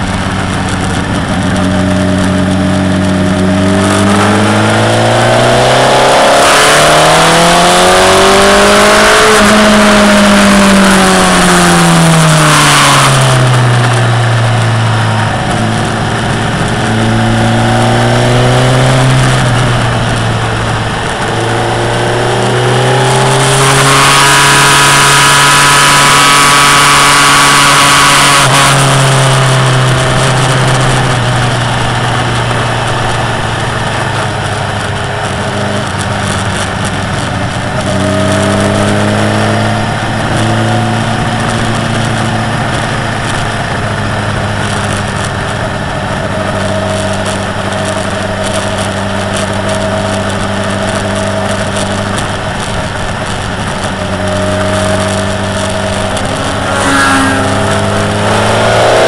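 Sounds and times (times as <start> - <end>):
motorcycle engine revving: 0.0 - 59.0
wind rushing: 54.0 - 59.0.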